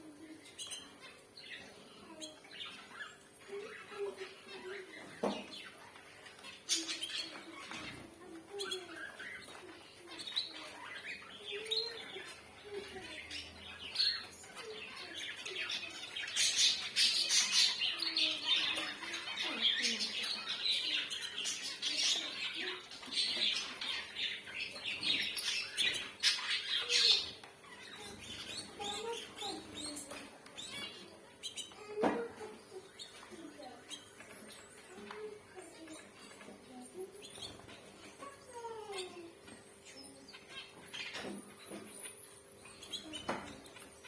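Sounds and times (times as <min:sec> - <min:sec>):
finches chirping: 0:00.0 - 0:44.0.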